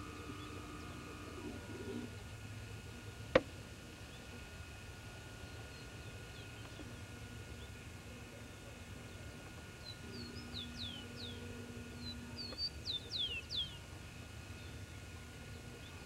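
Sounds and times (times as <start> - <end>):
birds chirping: 0.0 - 2.1
low steady background hiss: 0.0 - 16.0.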